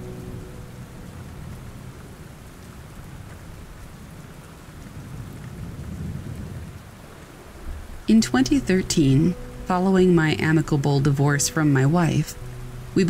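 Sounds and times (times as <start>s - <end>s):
low roll of thunder: 0.0s - 7.0s
steady rain falling: 0.0s - 13.0s.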